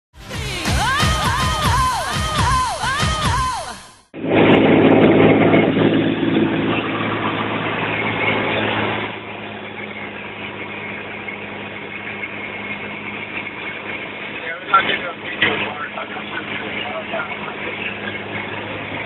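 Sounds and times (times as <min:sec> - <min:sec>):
aircraft engine and propeller droning: 0:04.2 - 0:19.0.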